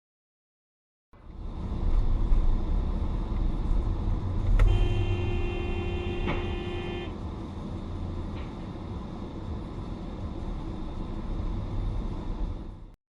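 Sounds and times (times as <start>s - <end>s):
car driving rumble: 1.2s - 13.0s
car horn held note: 4.6s - 7.1s.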